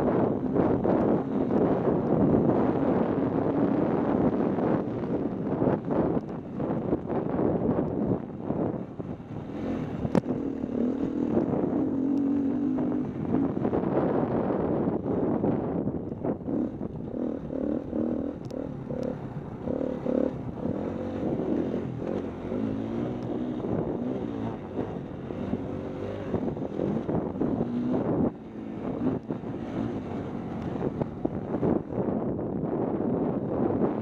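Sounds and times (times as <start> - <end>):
wind buffeting microphone: 0.0 - 34.0
dirt bike engine revving: 9.4 - 13.8, 16.4 - 31.8.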